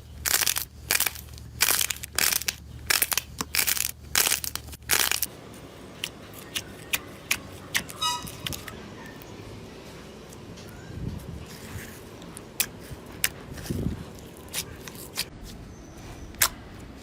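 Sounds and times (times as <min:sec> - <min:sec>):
crunchy slime crackling: 0:00.0 - 0:05.3
slime squeak: 0:07.7 - 0:09.2.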